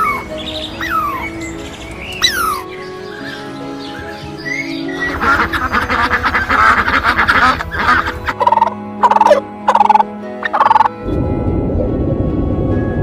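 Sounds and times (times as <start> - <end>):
background music: 0.0 - 13.0
fowl gobbling call: 5.1 - 10.9.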